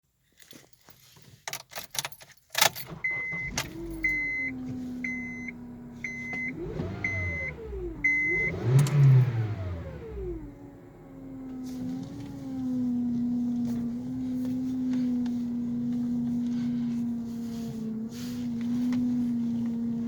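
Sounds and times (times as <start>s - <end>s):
car starting clicks: 1.8s - 20.0s
car engine starting and running: 2.6s - 20.0s
power steering pump whine: 2.7s - 20.0s
warning chime beeping: 3.0s - 8.8s.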